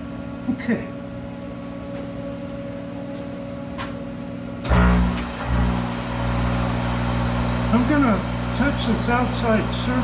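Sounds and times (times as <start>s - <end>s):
lathe running: 4.6s - 10.0s.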